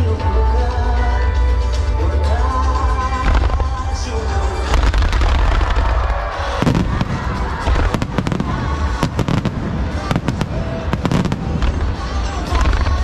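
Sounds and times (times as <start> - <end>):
music playing: 0.0 - 13.0
fireworks bangs and crackling: 2.8 - 13.0.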